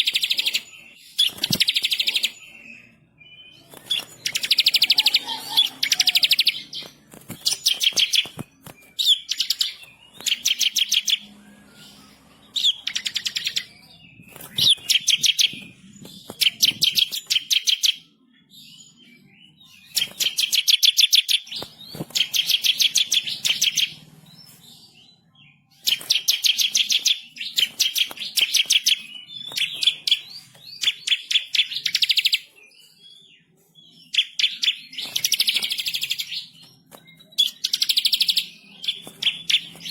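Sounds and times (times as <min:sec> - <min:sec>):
bird high trilled song: 0:00.0 - 0:18.1.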